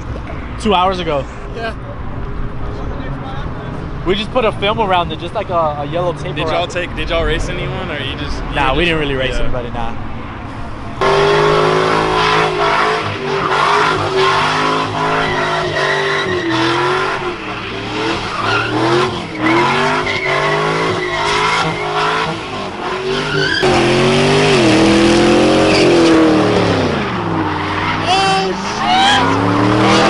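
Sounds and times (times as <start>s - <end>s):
car engine revving: 2.2s - 30.0s
tyres squealing: 11.1s - 30.0s.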